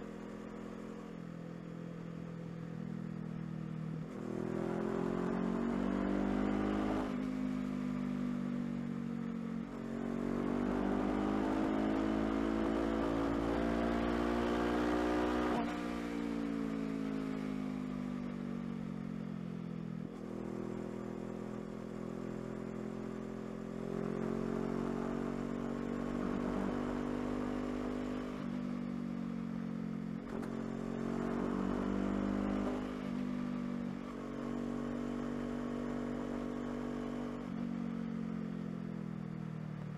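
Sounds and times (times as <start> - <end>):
motorcycle engine accelerating: 4.0 - 8.0, 9.4 - 16.5, 30.2 - 38.2.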